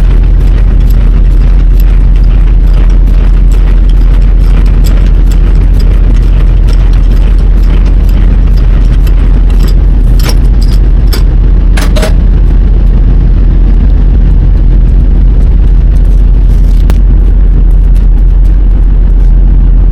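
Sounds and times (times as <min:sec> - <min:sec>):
sharp clicks: 0:00.0 - 0:12.2
diesel engine rumbling: 0:00.0 - 0:19.9.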